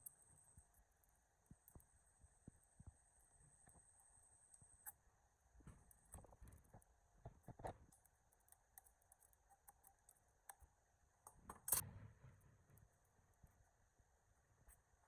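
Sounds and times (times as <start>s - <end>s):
faint clicks and knocks: 5.6s - 13.8s.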